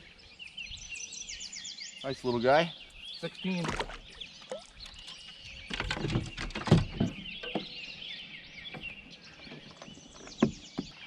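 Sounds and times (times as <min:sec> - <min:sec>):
songbirds chirping: 0:00.0 - 0:11.0
sharp knocks and clatters: 0:05.7 - 0:07.8.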